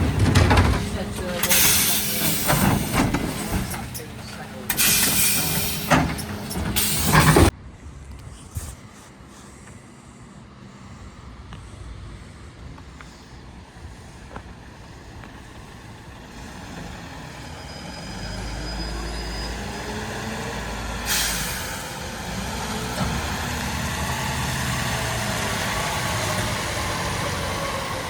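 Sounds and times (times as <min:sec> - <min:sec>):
truck engine revving: 0:00.0 - 0:07.5, 0:16.2 - 0:28.0
air brake hiss: 0:01.4 - 0:07.5, 0:21.0 - 0:22.1.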